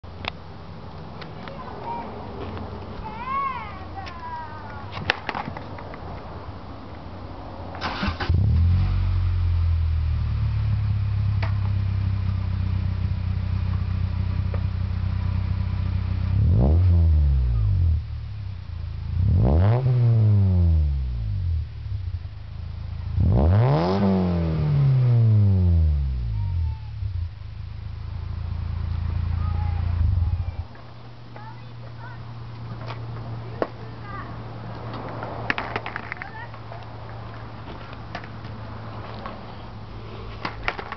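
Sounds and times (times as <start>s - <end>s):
car engine idling and revving: 6.6s - 35.7s.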